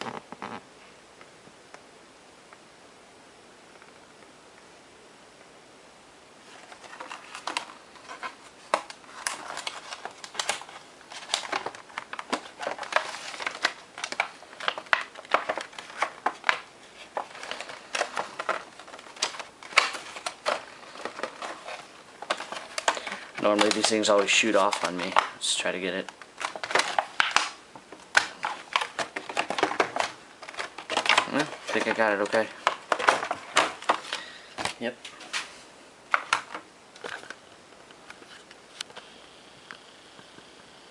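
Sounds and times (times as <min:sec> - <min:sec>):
plastic and foam crinkling: 0:06.4 - 0:37.5.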